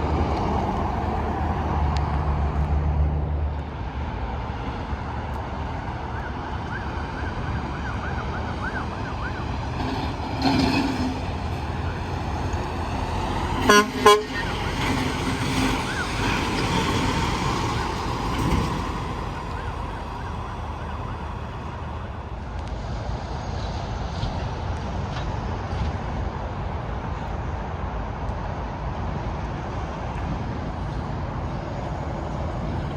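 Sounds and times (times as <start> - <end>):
highway traffic: 0.0 - 32.9
truck horn blasts: 13.6 - 15.0.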